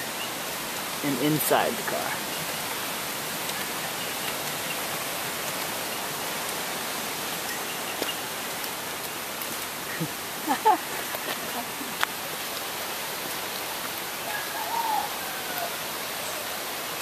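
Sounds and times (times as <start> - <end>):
rain falling on forest: 0.0 - 17.0.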